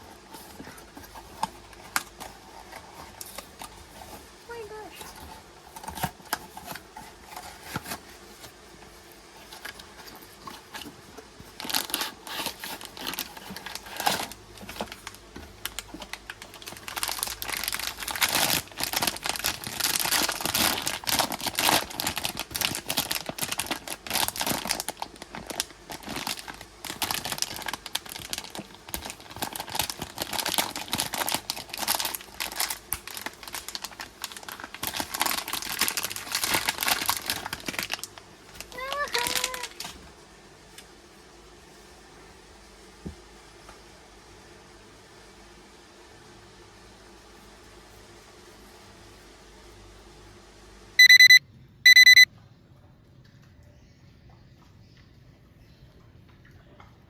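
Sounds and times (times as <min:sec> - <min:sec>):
plastic wrapping crinkling: 0:00.0 - 0:40.2.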